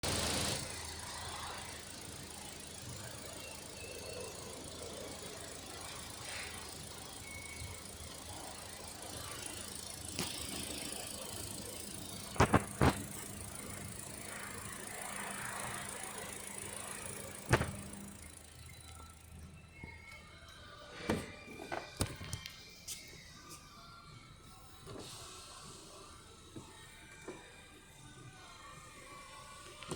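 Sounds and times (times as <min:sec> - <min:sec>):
car engine idling: 0:00.0 - 0:19.7.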